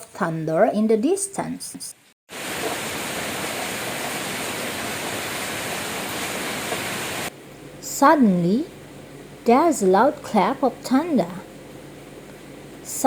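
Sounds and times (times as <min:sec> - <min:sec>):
heavy rain: 0:02.3 - 0:07.3.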